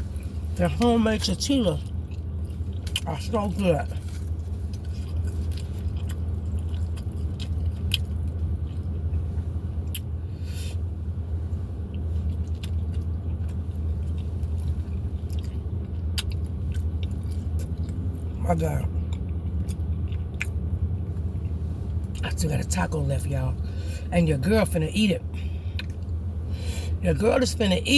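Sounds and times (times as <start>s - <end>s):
person chewing: 0.0s - 10.8s, 11.9s - 22.4s, 25.3s - 26.2s
steady low rumble: 0.0s - 27.9s.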